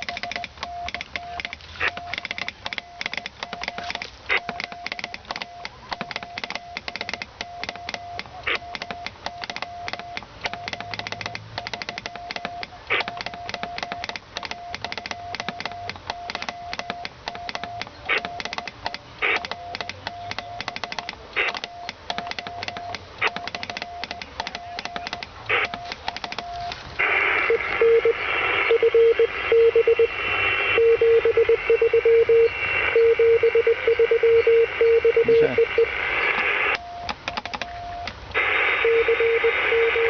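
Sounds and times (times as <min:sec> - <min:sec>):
crackling radio static: 0:00.0 - 0:40.0
morse code tone: 0:00.0 - 0:40.0
radio click: 0:00.0 - 0:40.0.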